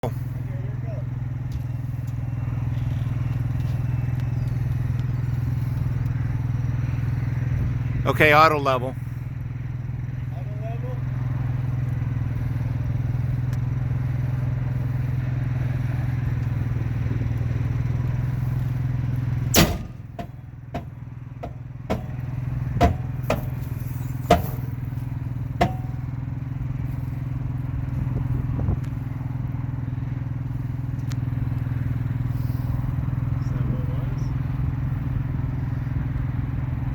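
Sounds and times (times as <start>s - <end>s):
loud sharp pop: 19.5s - 20.3s.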